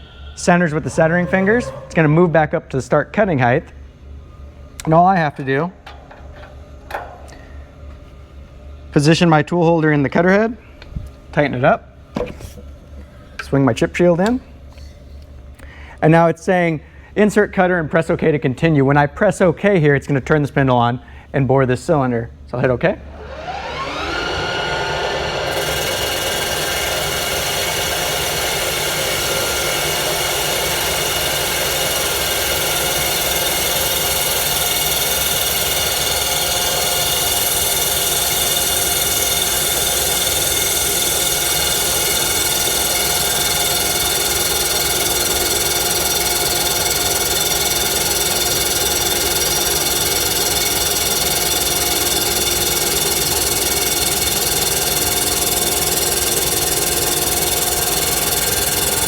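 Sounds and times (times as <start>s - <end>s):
boring machine whine: 0.0s - 9.4s, 22.9s - 59.0s.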